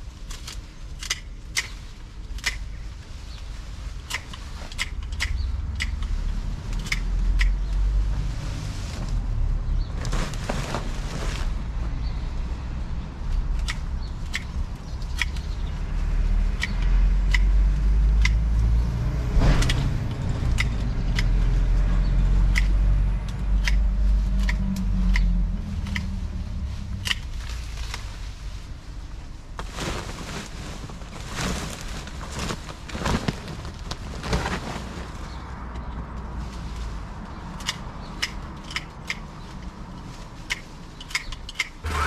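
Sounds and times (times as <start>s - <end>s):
branches rustling: 0.0s - 42.0s
hand pruners snipping stems: 0.3s - 2.8s, 4.0s - 8.1s, 13.3s - 19.0s, 19.6s - 26.2s, 26.9s - 27.4s, 37.6s - 39.3s, 40.4s - 42.0s
low rumble: 5.0s - 32.9s.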